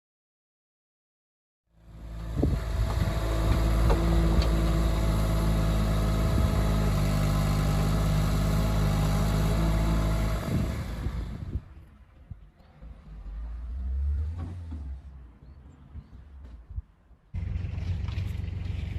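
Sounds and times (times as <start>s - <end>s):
engine running: 1.7s - 15.2s, 17.4s - 18.9s.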